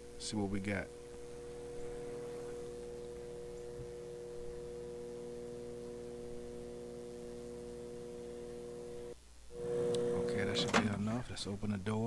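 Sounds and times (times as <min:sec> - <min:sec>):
microwave oven fan humming: 0:00.0 - 0:12.0.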